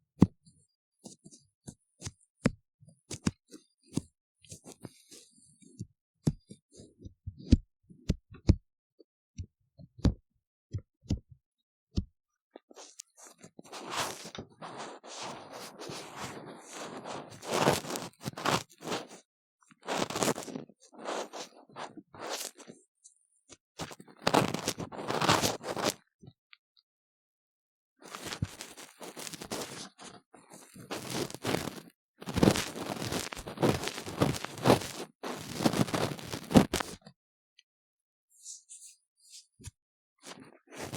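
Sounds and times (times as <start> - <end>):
soft taps and thuds in ear microphone: 1.0 - 5.0, 5.6 - 8.6, 9.4 - 12.1
scratchy scraping in ear microphone: 12.8 - 19.2, 19.8 - 22.8, 23.8 - 26.0, 28.0 - 37.0, 40.2 - 40.9.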